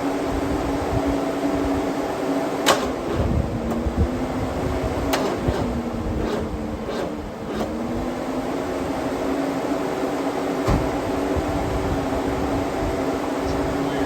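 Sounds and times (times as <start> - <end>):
car engine idling: 2.8 - 14.0.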